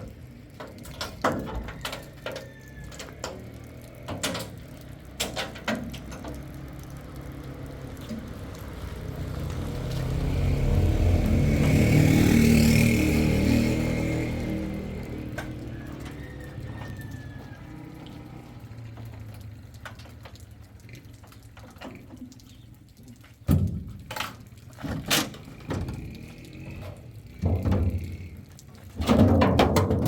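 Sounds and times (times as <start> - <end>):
knocks and clatters: 0.0 - 6.7, 23.4 - 30.0
vehicle engine approaching: 2.5 - 21.6, 25.4 - 29.0.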